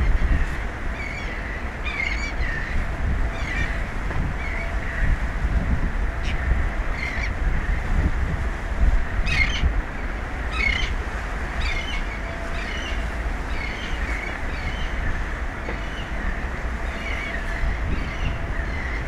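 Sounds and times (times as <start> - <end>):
birds calling: 0.0 - 5.2, 9.2 - 19.0
wind and sea rumble: 0.0 - 19.0.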